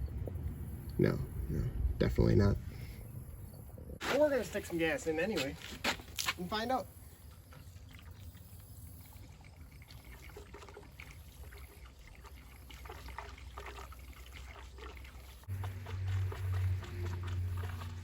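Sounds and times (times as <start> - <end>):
low hum: 0.0 - 4.0, 15.4 - 18.0
fuel trickling into a tank: 6.9 - 18.0.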